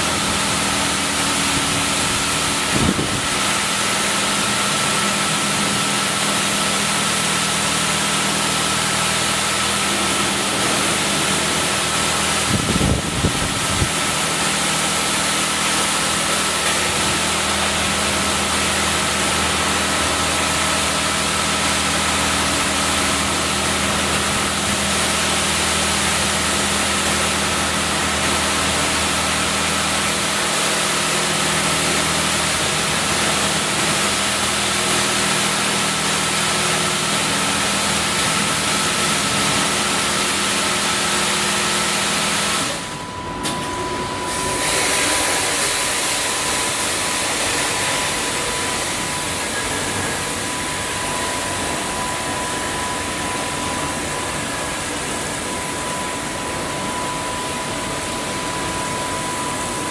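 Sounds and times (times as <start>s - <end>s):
car wash machine rushing: 0.0s - 59.9s
thin whine: 42.6s - 59.9s.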